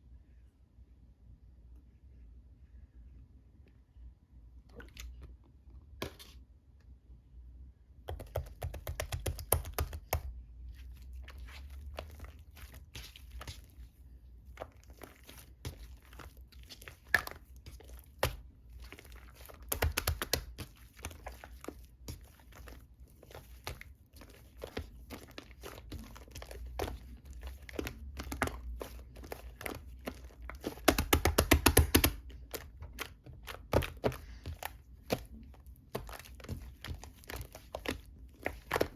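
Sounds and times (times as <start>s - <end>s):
slime squished by hand: 8.2s - 38.9s.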